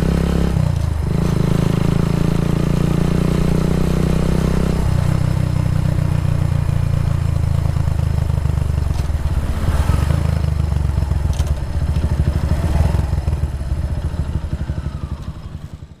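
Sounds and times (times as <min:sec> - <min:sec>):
motorcycle engine idling: 0:05.2 - 0:09.4, 0:10.2 - 0:16.0.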